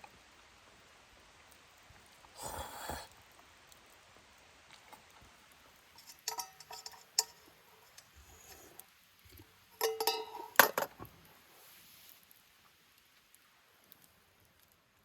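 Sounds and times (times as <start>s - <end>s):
rustle: 0.0s - 15.0s
cookware clinking and knocking: 6.0s - 8.1s, 9.8s - 10.9s.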